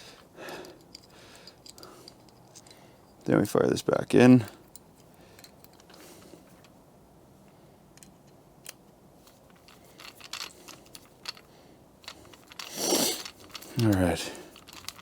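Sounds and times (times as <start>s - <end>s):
small metallic clicks and taps: 7.9s - 12.6s.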